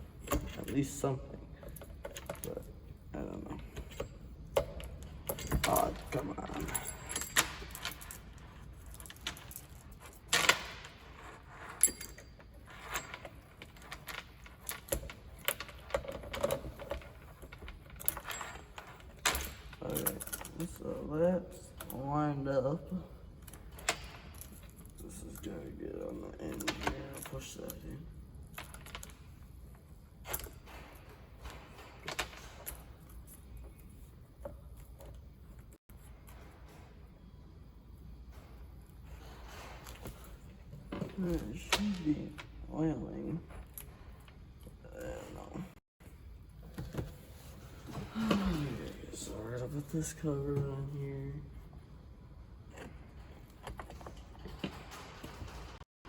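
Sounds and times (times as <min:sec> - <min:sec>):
metal chain clicking and clinking: 0:00.1 - 0:36.8.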